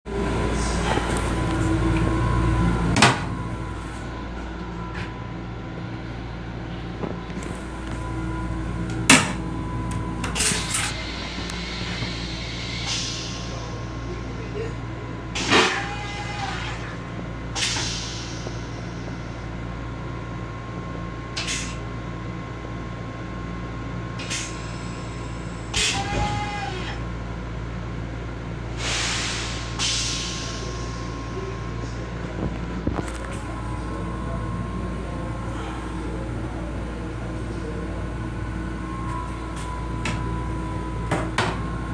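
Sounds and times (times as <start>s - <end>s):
railcar interior hum: 0.1s - 41.9s
hiss: 10.9s - 14.0s, 28.8s - 31.2s.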